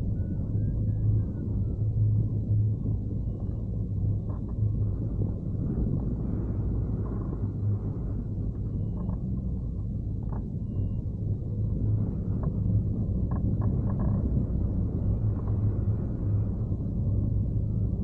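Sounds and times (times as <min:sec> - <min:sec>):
wind buffeting microphone: 0:00.0 - 0:18.0
faint clicks: 0:12.2 - 0:15.8.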